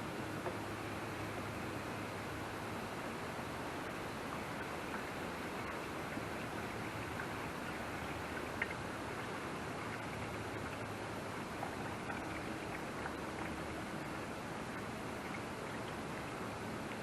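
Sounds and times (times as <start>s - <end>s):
fuel pouring into tank: 3.9s - 17.0s.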